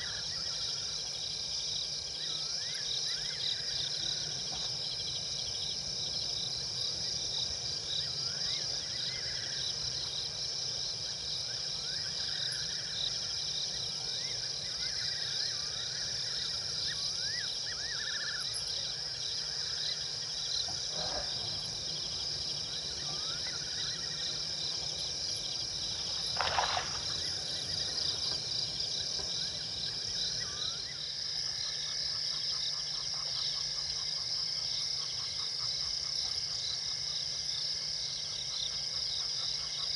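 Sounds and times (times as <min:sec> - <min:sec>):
crickets trilling: 0:00.0 - 0:39.9
rustling: 0:26.1 - 0:27.5.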